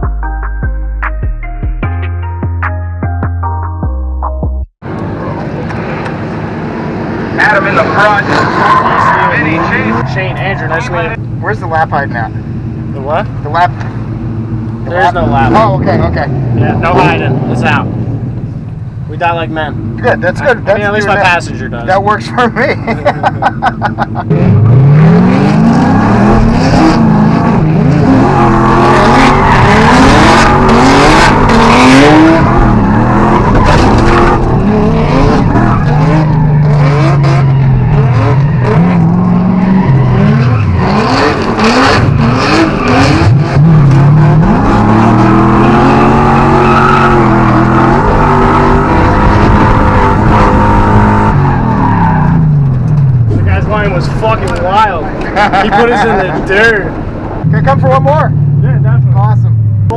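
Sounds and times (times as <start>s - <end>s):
car engine revving hard: 6.8s - 11.2s, 24.0s - 59.3s
tyres squealing: 7.6s - 11.2s.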